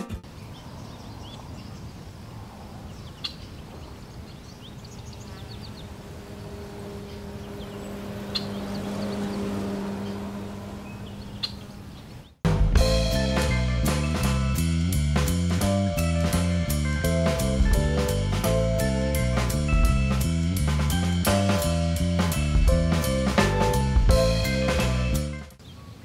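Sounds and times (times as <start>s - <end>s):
distant traffic hum: 0.0s - 26.0s
small birds chirping: 0.2s - 12.4s, 25.6s - 26.0s.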